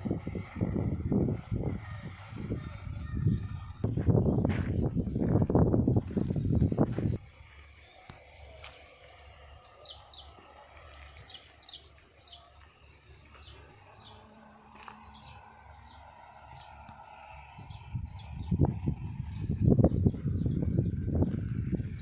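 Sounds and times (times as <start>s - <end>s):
steady low rumble: 0.0s - 22.0s
small birds chirping: 7.6s - 22.0s.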